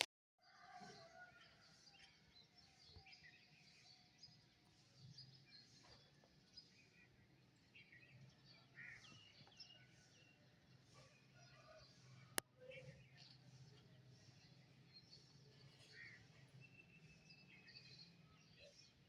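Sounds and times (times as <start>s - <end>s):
songbirds chirping: 0.5s - 19.0s.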